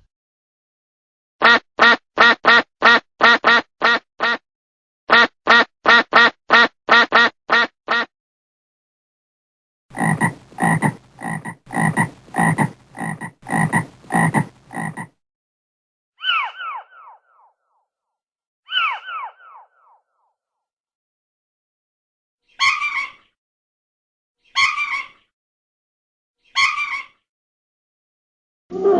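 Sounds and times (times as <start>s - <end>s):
frog croaking: 9.9s - 15.1s.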